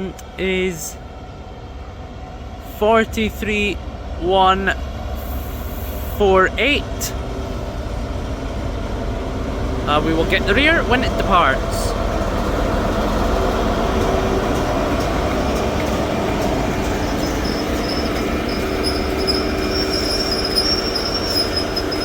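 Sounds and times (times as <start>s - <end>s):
diesel engine idling: 4.9s - 20.7s.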